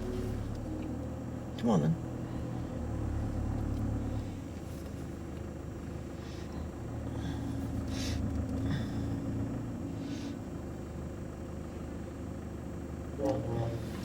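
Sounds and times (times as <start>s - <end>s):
car engine rumble from inside cabin: 0.0s - 14.0s
faint hum: 0.0s - 14.0s.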